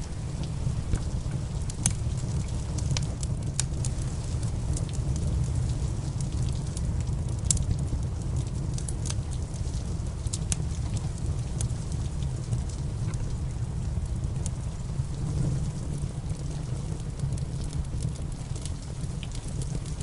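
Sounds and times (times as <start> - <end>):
rain hissing: 0.0 - 6.2
wood fire crackling and popping: 0.0 - 20.0.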